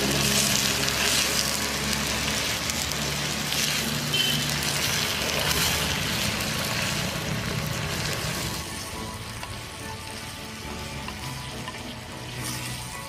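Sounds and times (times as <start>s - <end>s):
leaves sizzling in oil: 0.0s - 13.0s.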